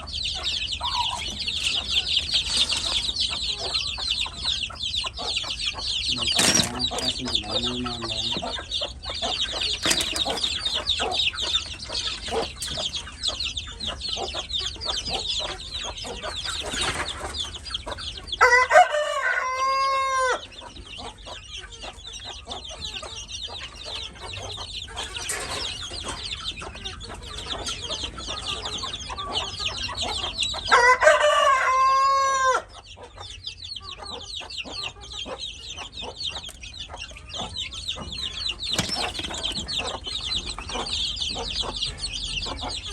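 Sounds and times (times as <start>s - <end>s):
rooster crowing: 18.4s - 20.4s, 30.7s - 32.7s.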